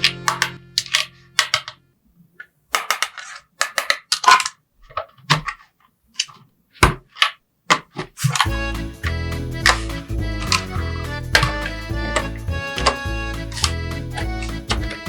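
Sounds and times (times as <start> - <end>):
plastic toy pieces clicking: 0.0 - 1.8, 2.4 - 6.4.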